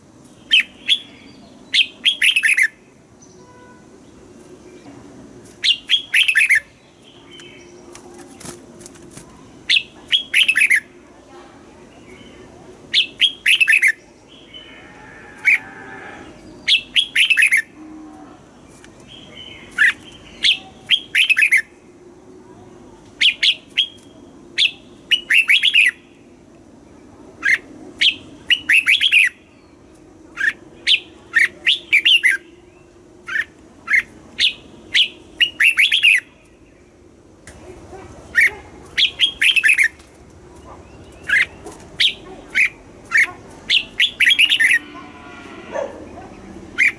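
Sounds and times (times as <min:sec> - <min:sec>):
bird singing whistled phrases: 0:34.4 - 0:36.3.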